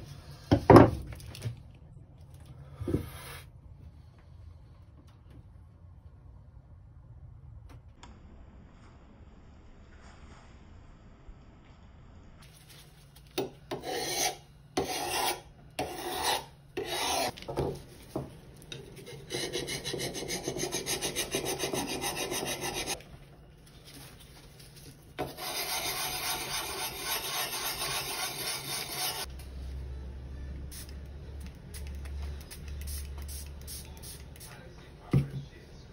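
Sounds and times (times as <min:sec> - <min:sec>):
draw knife rasping scrape: 0:13.7 - 0:17.4, 0:19.0 - 0:23.0, 0:25.2 - 0:29.3.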